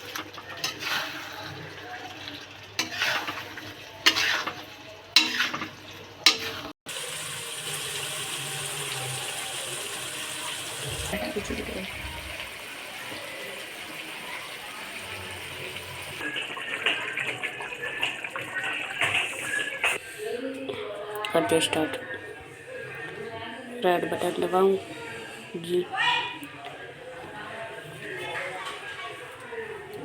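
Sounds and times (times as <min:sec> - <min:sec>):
kitchen utensils knocking: 0:05.2 - 0:06.6
water running from tap: 0:06.9 - 0:20.0.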